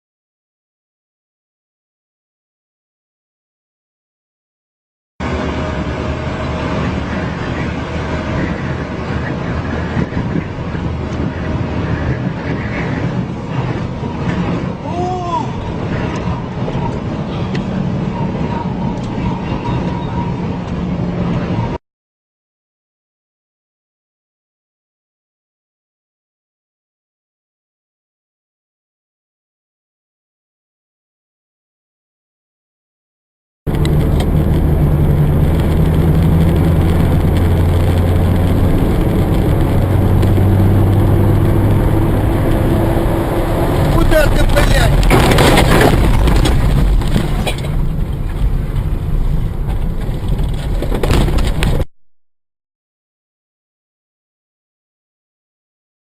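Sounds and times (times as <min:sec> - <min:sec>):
rising and falling tone: 0:05.2 - 0:14.8, 0:33.7 - 0:45.2
vehicle road and engine noise: 0:05.2 - 0:21.8, 0:33.7 - 0:51.9.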